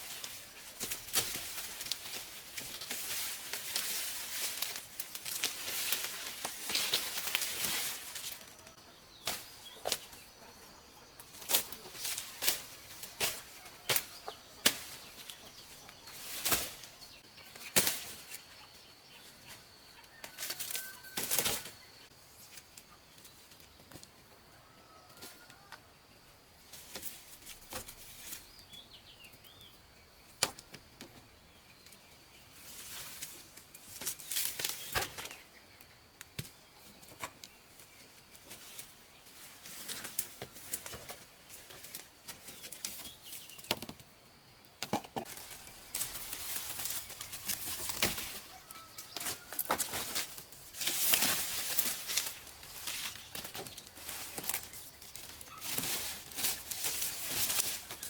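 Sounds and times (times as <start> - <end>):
dry leaves rustling: 0.0 - 10.5, 11.2 - 19.4, 32.6 - 35.4, 45.2 - 58.0.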